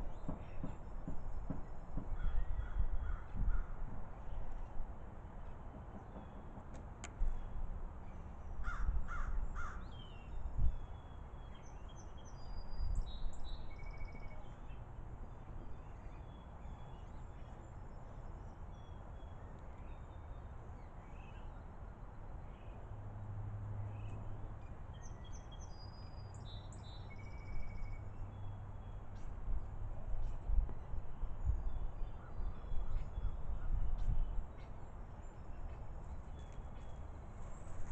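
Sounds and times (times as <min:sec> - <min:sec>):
crow cawing: 0:08.6 - 0:09.8.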